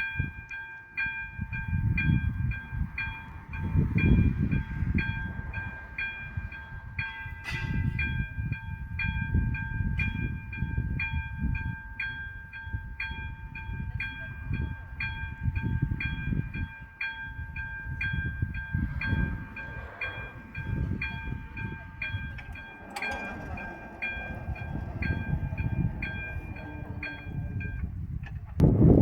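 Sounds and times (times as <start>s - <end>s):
level crossing bell ringing: 11.3s - 27.8s
low rumble: 17.5s - 29.0s.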